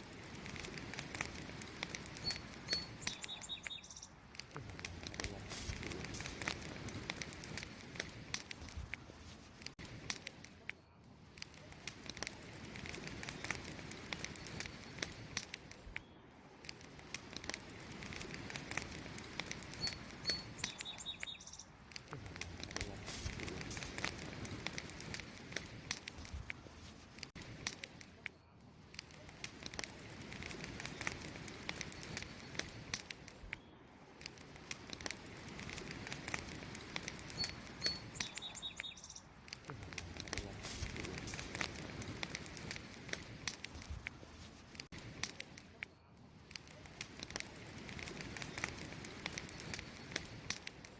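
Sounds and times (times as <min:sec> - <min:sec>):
campfire crackling: 0:00.0 - 0:50.9
bird chirping: 0:02.2 - 0:04.2, 0:19.7 - 0:21.8, 0:37.3 - 0:39.4.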